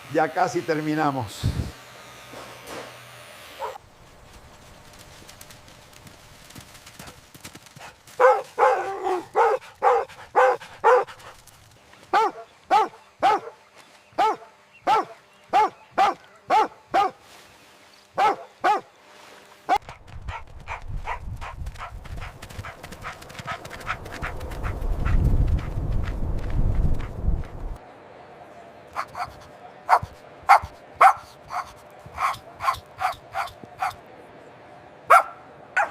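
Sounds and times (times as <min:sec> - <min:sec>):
dog barking: 0:03.6 - 0:03.8, 0:08.2 - 0:11.2, 0:12.1 - 0:13.6, 0:14.2 - 0:17.2, 0:18.2 - 0:18.9, 0:19.7 - 0:24.0, 0:29.0 - 0:34.0, 0:35.1 - 0:35.9
low rumbling with rapid ticks: 0:20.8 - 0:27.8.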